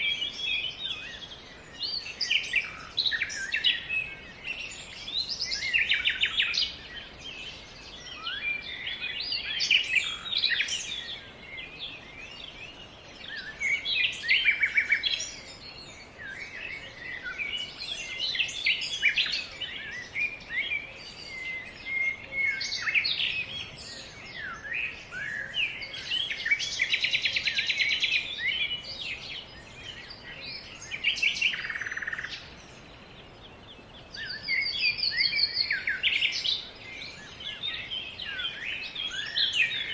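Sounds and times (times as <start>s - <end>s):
songbirds chirping and whistling: 0.0s - 39.9s.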